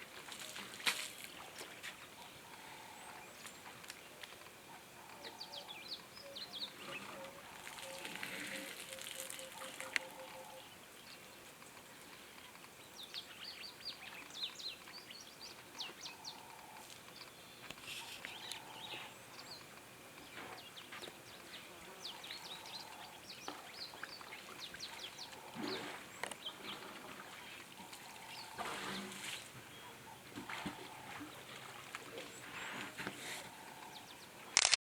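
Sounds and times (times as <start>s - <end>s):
outdoor ambience: 0.0s - 34.8s
birds chirping and calling: 4.7s - 10.8s, 13.0s - 34.3s.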